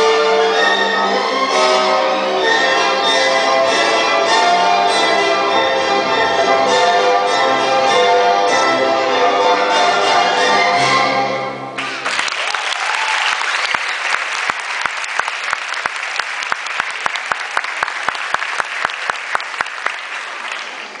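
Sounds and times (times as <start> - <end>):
orchestral music: 0.0 - 12.2
audience applause: 11.8 - 21.0
sharp rhythmic claps: 11.8 - 21.0.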